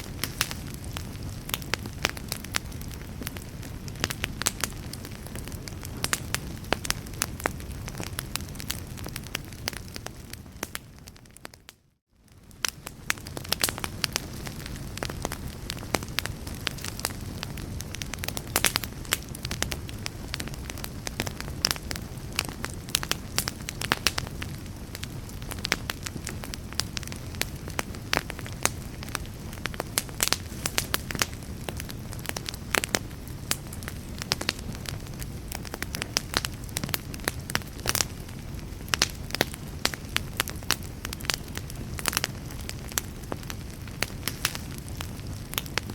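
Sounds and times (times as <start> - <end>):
fire crackling and popping: 0.0 - 45.9
low rumble of flame: 0.0 - 45.9.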